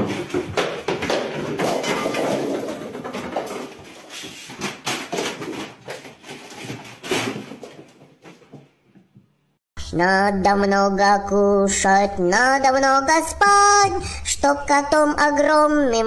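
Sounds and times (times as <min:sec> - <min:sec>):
knocks and thumps on furniture: 0:00.0 - 0:09.2.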